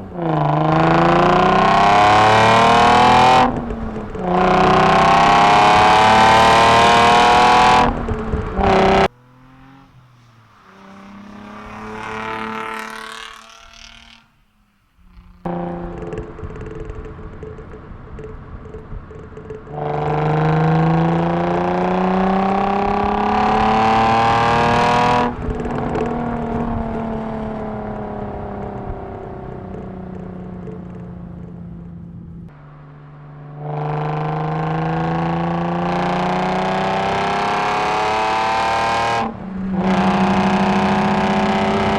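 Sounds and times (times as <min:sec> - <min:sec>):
car engine revving through exhaust: 0:00.0 - 0:14.4, 0:15.0 - 0:41.9.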